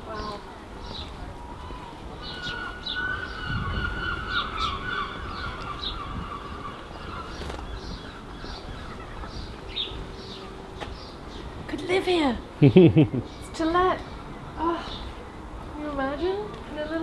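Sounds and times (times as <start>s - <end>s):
longer lower bird call: 0.0s - 11.5s.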